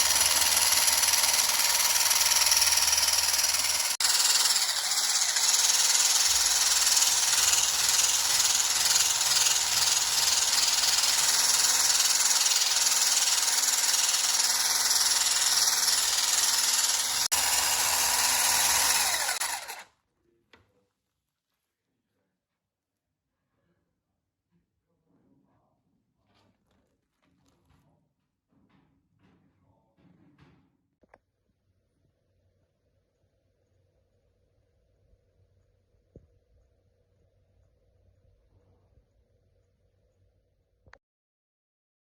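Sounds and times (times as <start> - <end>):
electric mixer whipping cream: 0.0 - 19.8.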